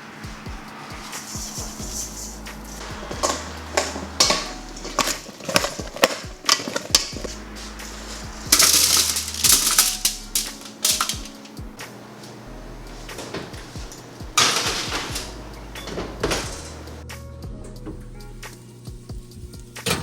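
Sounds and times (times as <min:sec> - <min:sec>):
utensils and dishes clattering: 0:00.0 - 0:17.0, 0:19.8 - 0:20.0
background music with bass: 0:00.2 - 0:20.0
rasping: 0:00.3 - 0:13.2.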